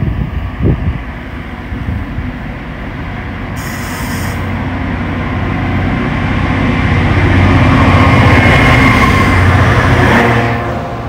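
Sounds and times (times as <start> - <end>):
train rumbling: 0.0 - 11.0
high hiss: 3.6 - 4.5.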